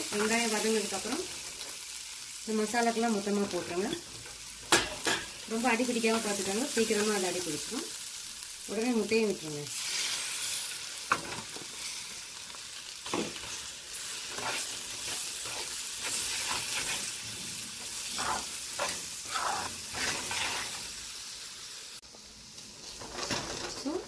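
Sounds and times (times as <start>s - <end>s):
food sizzling in hot oil: 0.0s - 24.0s
metal spatula scraping pan: 17.8s - 20.9s.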